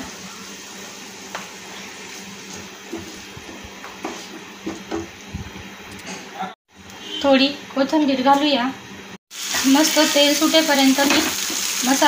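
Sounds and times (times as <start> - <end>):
wooden spatula knocking and scraping: 2.5 - 5.6
paste sizzling in oil: 9.3 - 12.0.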